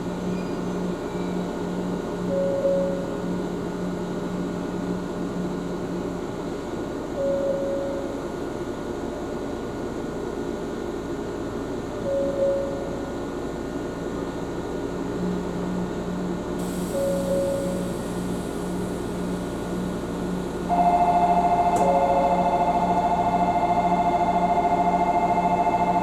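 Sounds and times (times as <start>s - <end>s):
brief higher tone: 20.7s - 26.0s.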